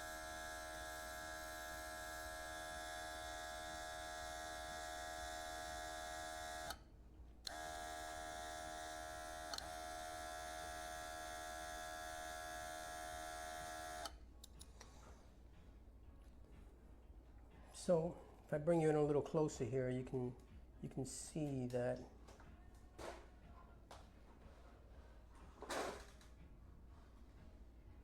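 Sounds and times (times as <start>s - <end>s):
airbrush compressor buzzing: 0.0s - 6.8s, 7.5s - 14.1s.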